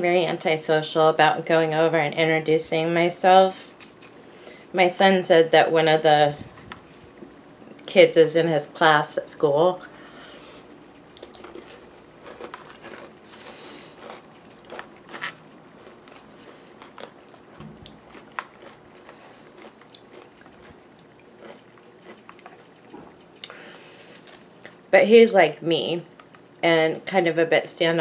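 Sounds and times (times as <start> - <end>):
chewing crunchy granola: 10.4 - 24.8.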